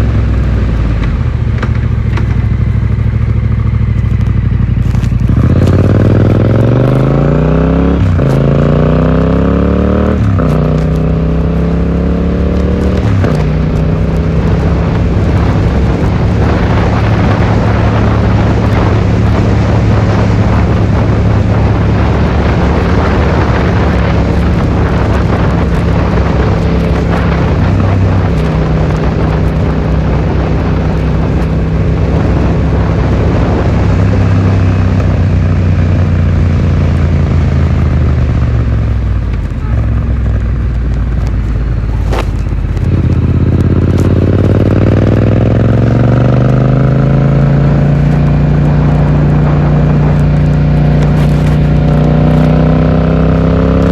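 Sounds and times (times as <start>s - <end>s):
heavy wind noise: 0.0s - 53.9s
muffled motorcycle engine accelerating: 0.0s - 53.9s.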